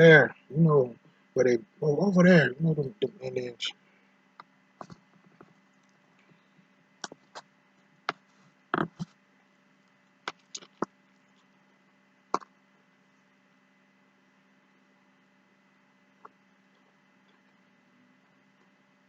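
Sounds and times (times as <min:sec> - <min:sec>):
faint steady hum: 0:00.0 - 0:19.0
eating clicks and smacks: 0:07.0 - 0:07.4.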